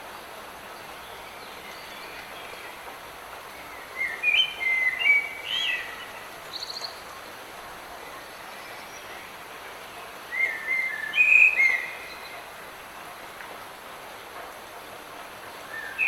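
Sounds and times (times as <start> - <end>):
songbird singing: 0.7 - 7.4, 8.0 - 12.5, 15.5 - 16.0.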